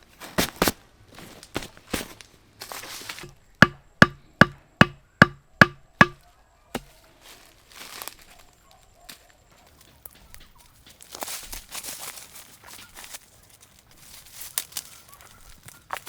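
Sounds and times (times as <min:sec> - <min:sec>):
hand tool striking wood: 0:03.1 - 0:06.2, 0:06.8 - 0:07.0.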